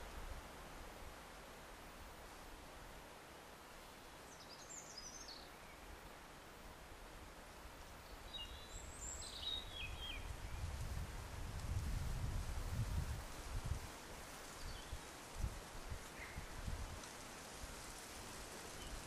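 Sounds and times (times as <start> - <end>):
songbird singing: 3.8 - 6.0, 7.9 - 10.8, 14.5 - 15.1, 16.1 - 16.5, 18.2 - 19.0.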